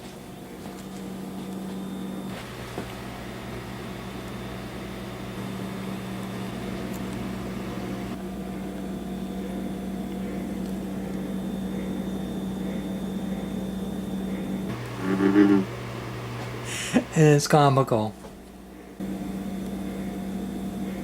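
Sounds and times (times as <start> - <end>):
refrigerator humming: 0.0 - 21.0
frog-like noise: 14.7 - 15.8.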